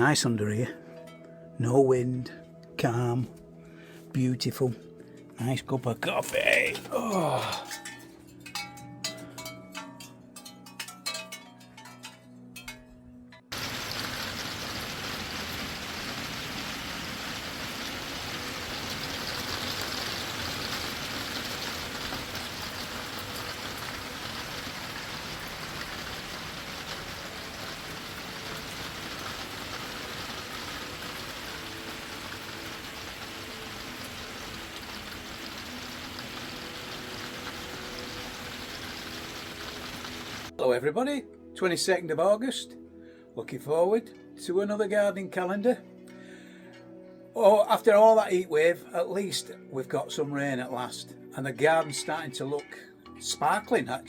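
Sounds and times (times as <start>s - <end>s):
heavy rain: 13.5s - 40.5s.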